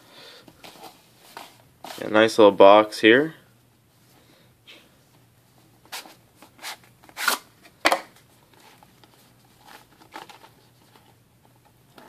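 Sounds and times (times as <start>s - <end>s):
packaging rustling: 8.5s - 11.2s.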